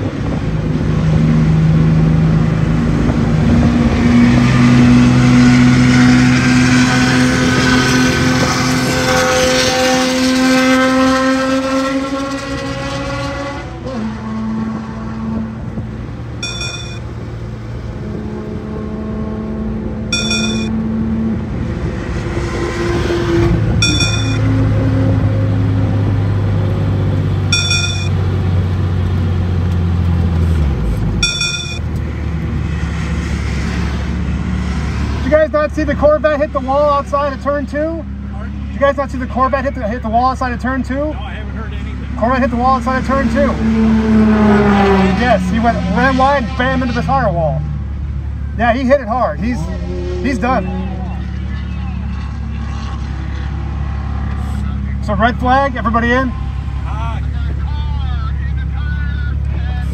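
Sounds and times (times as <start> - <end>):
car engine revving in cabin: 0.0 - 36.4, 41.6 - 48.3
short high electronic beep: 16.4 - 17.1, 20.1 - 20.8, 23.8 - 24.5, 27.5 - 28.2, 31.2 - 31.8.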